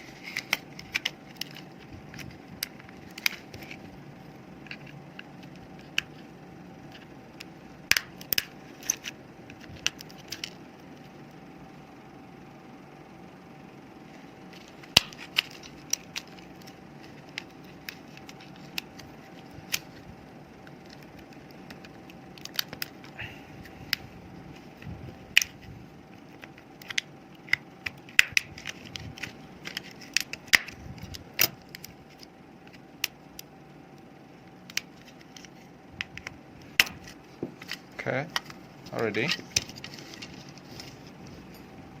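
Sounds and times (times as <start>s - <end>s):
plastic casing clicking and snapping: 20.8s - 23.1s, 25.3s - 25.6s, 26.3s - 33.5s.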